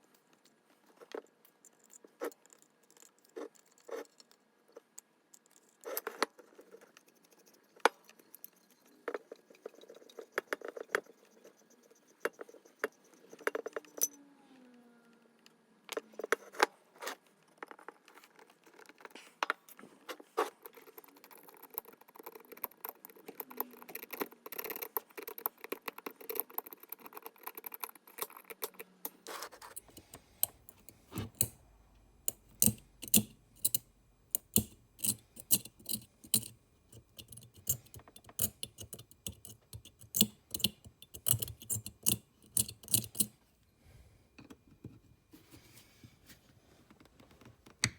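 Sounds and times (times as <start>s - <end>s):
metal parts clinking and scraping: 32.3s - 43.3s.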